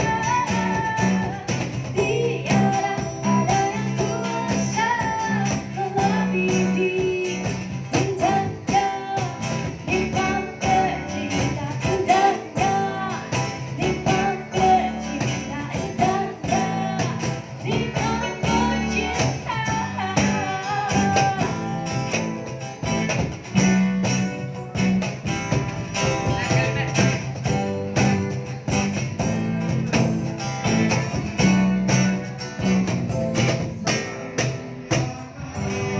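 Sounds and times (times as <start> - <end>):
person singing: 0.0 - 21.8, 34.8 - 35.9
bass line: 0.0 - 35.9
guitar: 0.0 - 35.9.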